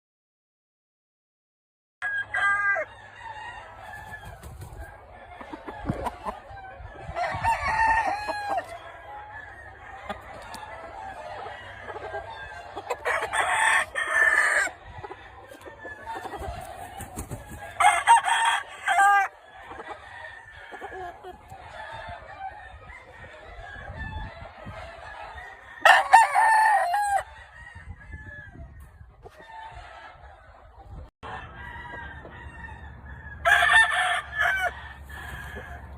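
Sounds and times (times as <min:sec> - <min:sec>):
roosters crowing: 0:02.0 - 0:35.9
chickens clucking: 0:02.9 - 0:35.9.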